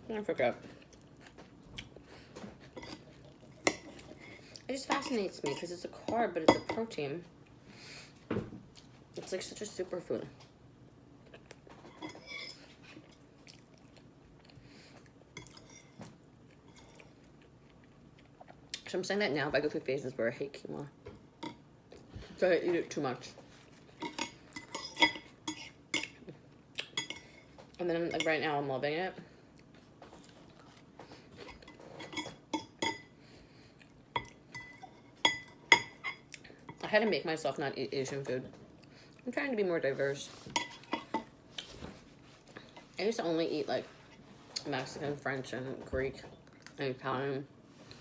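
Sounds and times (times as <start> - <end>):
person chewing salad: 0.8 - 4.7, 13.0 - 18.9.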